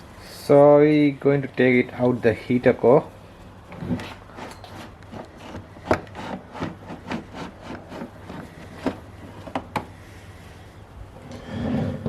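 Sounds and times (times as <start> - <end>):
scraping and rubbing: 3.8 - 9.5, 11.2 - 12.0.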